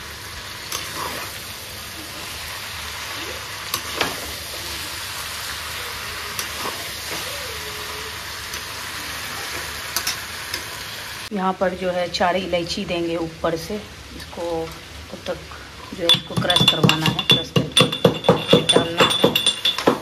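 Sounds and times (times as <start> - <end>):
chicken sizzling in a pan: 0.0 - 11.3.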